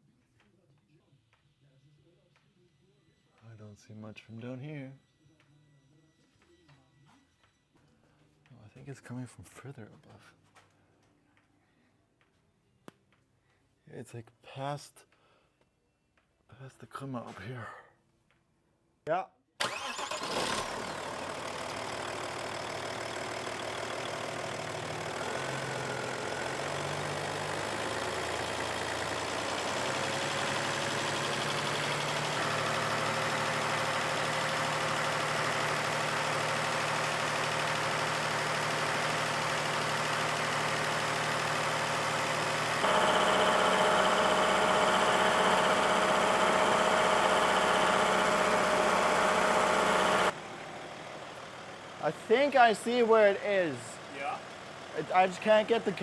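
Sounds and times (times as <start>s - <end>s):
diesel engine idling: 19.6s - 56.0s.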